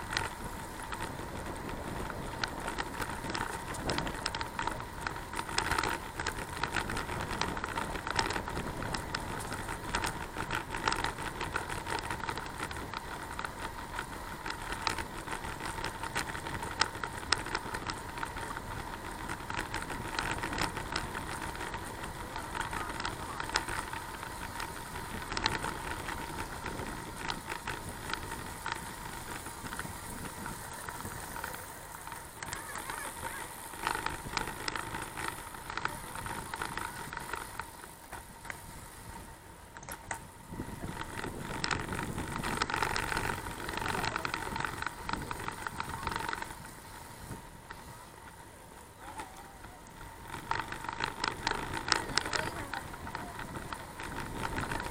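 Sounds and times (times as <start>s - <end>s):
bicycle rattling clicks and knocks: 0.0s - 54.9s
tyre noise: 0.0s - 54.9s
wind noise: 38.5s - 48.0s.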